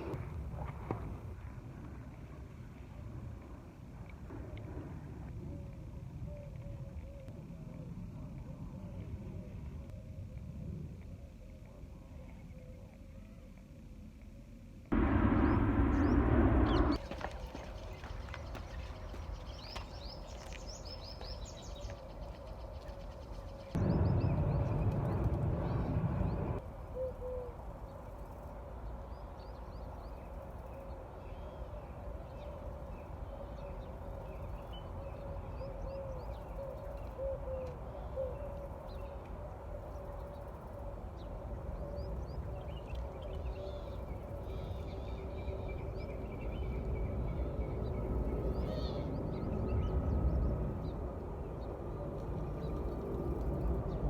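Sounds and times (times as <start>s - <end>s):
loud rush of noise: 15.0s - 17.0s.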